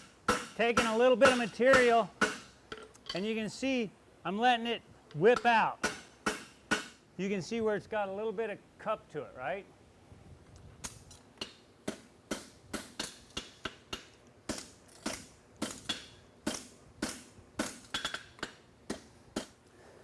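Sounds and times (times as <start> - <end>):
hammer striking metal on anvil: 0.3 - 2.8, 5.4 - 7.0.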